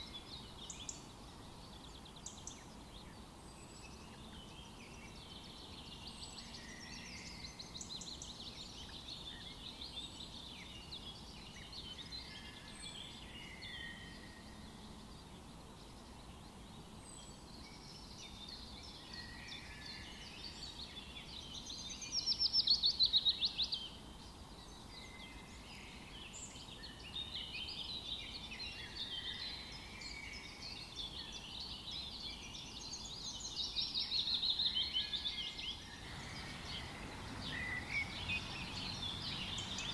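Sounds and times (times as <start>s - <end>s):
faint steady background hiss: 0.0s - 39.9s
wild birds singing and chirping: 0.0s - 39.9s
rapid run of repeated bird notes: 36.0s - 39.9s.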